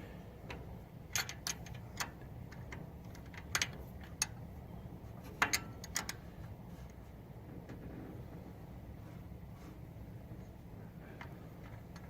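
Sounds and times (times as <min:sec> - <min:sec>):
wrench clicking on bolts: 0:01.1 - 0:04.4.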